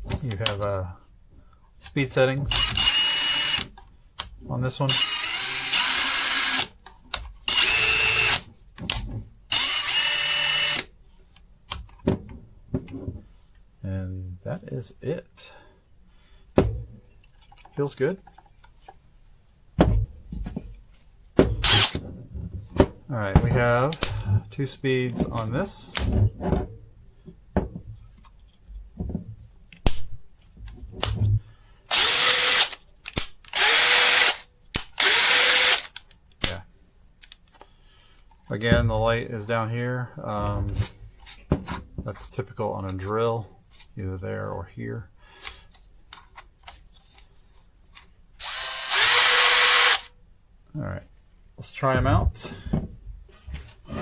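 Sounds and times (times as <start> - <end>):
cordless drill motor running: 2.5 - 3.7, 4.9 - 6.7, 7.5 - 8.4, 9.5 - 10.9, 21.6 - 22.0, 31.9 - 32.8, 33.5 - 34.4, 35.0 - 36.0, 48.4 - 50.1
impact driver motor whine: 21.6 - 22.0, 35.0 - 35.9, 48.4 - 50.1.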